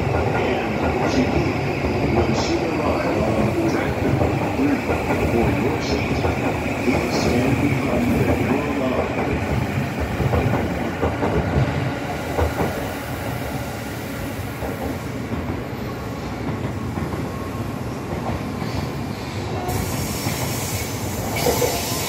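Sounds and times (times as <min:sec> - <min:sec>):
train wheels clacking: 0:00.0 - 0:13.2, 0:14.5 - 0:22.0
high hiss: 0:19.7 - 0:22.0.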